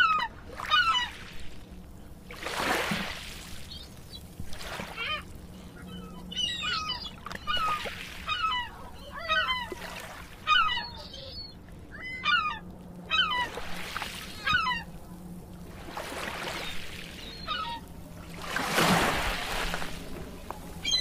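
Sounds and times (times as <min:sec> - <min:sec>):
bird calls with falling pitch: 0:05.0 - 0:09.8, 0:10.5 - 0:13.6, 0:14.3 - 0:14.9.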